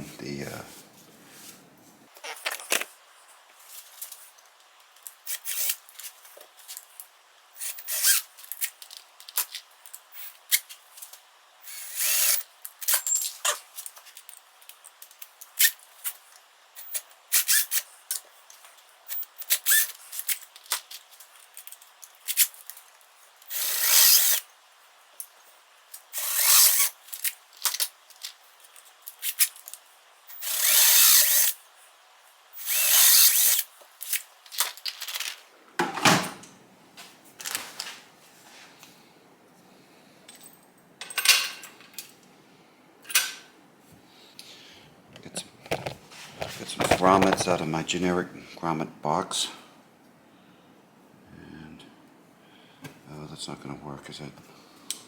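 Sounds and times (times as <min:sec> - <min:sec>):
power drill drilling: 0:11.7 - 0:12.4, 0:23.5 - 0:24.4, 0:26.2 - 0:26.9, 0:30.3 - 0:31.6, 0:32.6 - 0:33.6.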